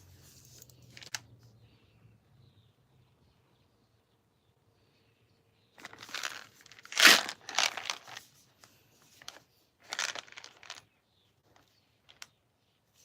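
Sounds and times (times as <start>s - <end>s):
packaging crinkling and tearing: 5.8s - 8.2s, 9.9s - 10.8s.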